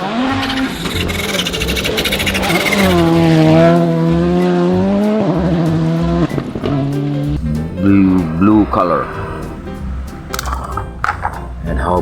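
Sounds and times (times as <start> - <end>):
music with bass beat: 0.0 - 12.0
rally car engine revving: 0.0 - 12.0.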